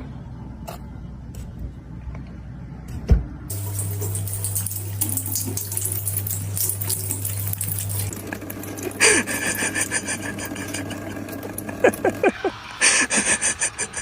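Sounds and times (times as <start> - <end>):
tap water running: 3.5 - 14.0.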